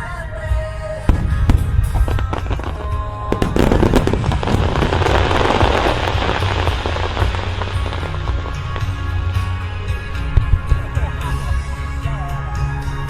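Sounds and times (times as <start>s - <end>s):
music: 0.0s - 13.0s
low rumble: 1.0s - 11.7s
firework bursts: 1.1s - 9.6s
firework crackling pops: 1.1s - 9.6s.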